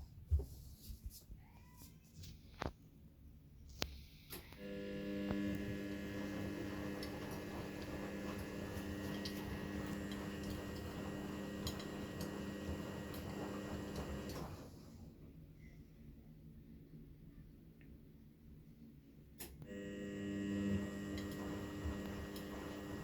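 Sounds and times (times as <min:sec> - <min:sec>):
washing machine motor hum: 0:04.4 - 0:15.3, 0:19.4 - 0:23.0.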